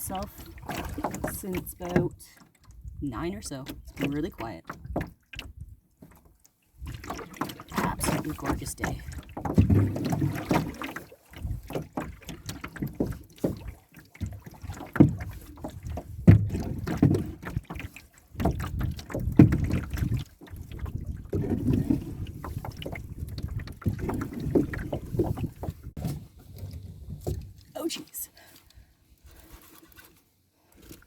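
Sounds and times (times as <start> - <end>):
paddle strokes in water: 0.0 - 31.0
knocks on canoe hull: 11.7 - 17.7, 18.4 - 21.8.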